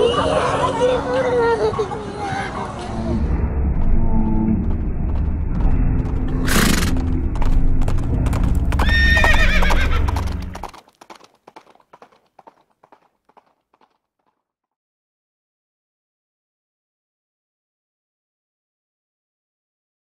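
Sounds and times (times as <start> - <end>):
low rumble: 2.8 - 10.6
hoofbeats clip-clopping: 3.8 - 14.4
horse whinnying: 6.4 - 7.0, 8.8 - 10.7.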